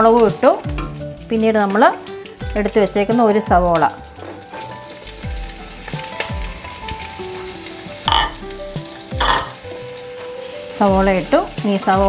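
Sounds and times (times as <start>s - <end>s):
oil sizzling in a pan: 0.0s - 12.0s
onion tipped into hot oil: 8.1s - 8.6s, 9.2s - 9.7s.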